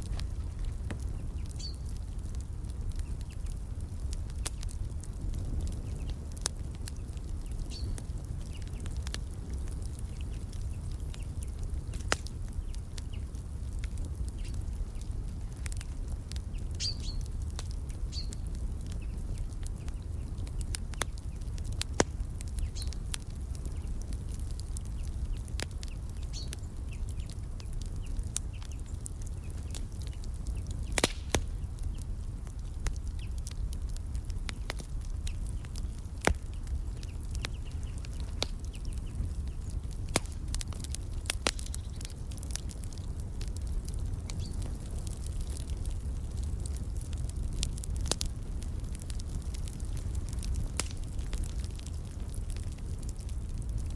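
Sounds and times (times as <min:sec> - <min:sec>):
sharp pops of fire: 0:00.0 - 0:53.9
wood fire crackling: 0:00.0 - 0:53.9
faint birds chirping: 0:00.6 - 0:02.2, 0:18.0 - 0:21.7, 0:23.6 - 0:32.3, 0:34.2 - 0:43.1.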